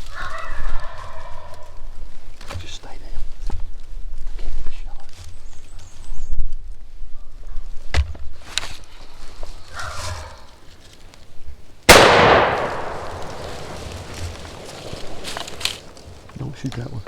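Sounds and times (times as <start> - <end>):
shotgun blast: 11.9 - 15.2.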